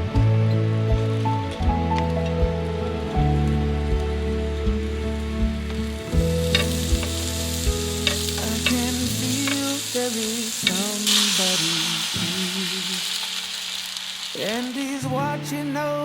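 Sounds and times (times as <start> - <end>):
background pop music: 0.0 - 16.0
food sizzling in a pan: 6.2 - 15.5.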